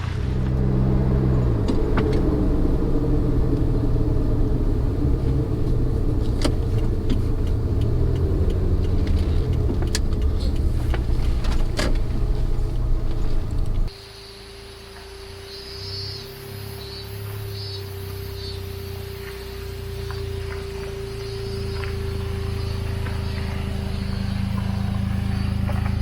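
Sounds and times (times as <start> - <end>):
car engine running: 0.0 - 13.9, 20.0 - 26.0
sharp clicks and knocks: 4.6 - 13.9.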